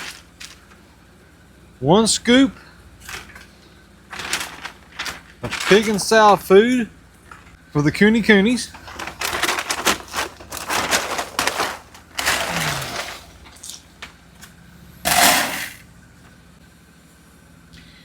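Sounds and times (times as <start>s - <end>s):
feed pellets pouring: 15.1s - 15.8s.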